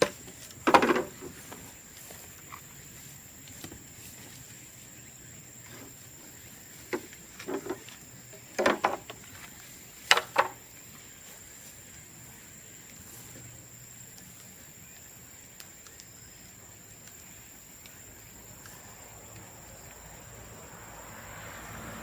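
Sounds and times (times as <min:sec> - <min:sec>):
bamboo fire crackling and popping: 0:14.0 - 0:20.2.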